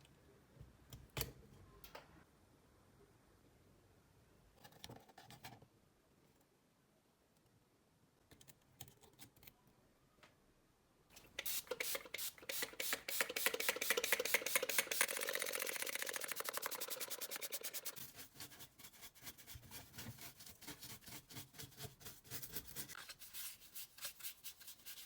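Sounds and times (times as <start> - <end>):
rapid mechanical clicking: 12.9 - 18.0.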